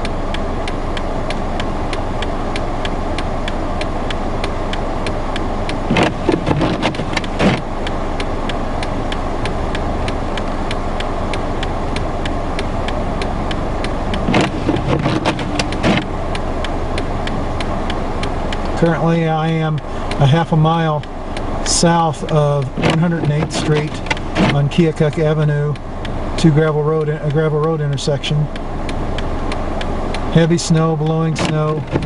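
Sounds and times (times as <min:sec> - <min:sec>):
car engine idling: 0:00.0 - 0:32.0
faint regular ticking: 0:00.0 - 0:32.0
knocks and rustles: 0:05.9 - 0:07.7, 0:14.1 - 0:16.1, 0:22.7 - 0:24.6, 0:31.4 - 0:32.0.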